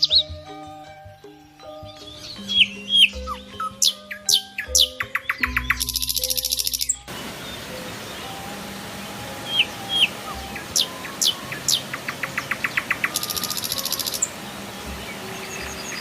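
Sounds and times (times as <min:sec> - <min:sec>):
forest birds calling: 0:00.0 - 0:16.0
flowing river water: 0:07.1 - 0:16.0.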